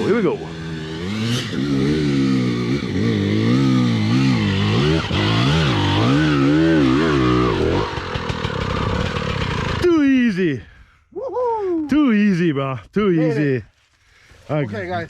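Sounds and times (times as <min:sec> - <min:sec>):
dirt bike engine revving: 0:00.0 - 0:10.2
engine popping: 0:06.9 - 0:09.8.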